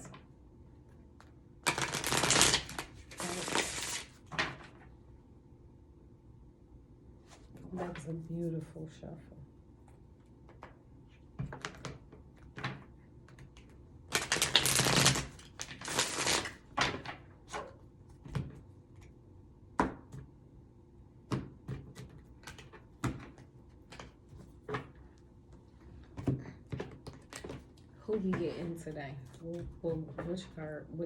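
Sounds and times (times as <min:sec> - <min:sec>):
cards snapping and tapping: 0:01.2 - 0:04.1, 0:11.4 - 0:16.4
cards riffling: 0:01.6 - 0:04.2, 0:14.1 - 0:16.7.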